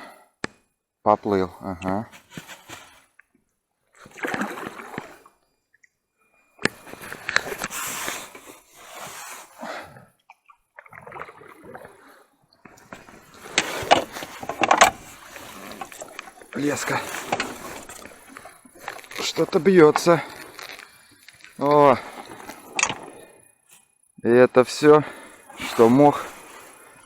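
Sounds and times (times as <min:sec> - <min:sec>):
oars splashing in water: 0:04.0 - 0:05.4, 0:06.6 - 0:23.4, 0:24.8 - 0:27.0.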